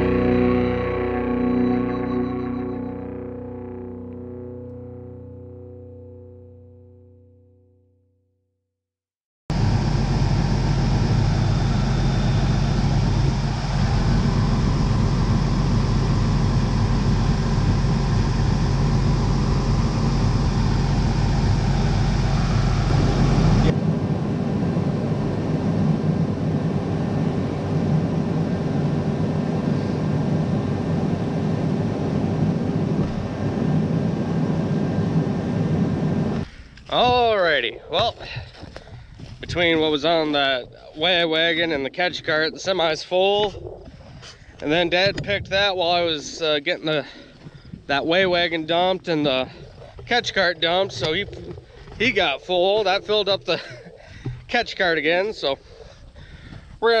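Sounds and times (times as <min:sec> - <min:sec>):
low-pitched machine sound: 0:00.0 - 0:07.9, 0:09.5 - 0:56.3
farm machinery engine running: 0:09.5 - 0:37.3, 0:45.0 - 0:55.8.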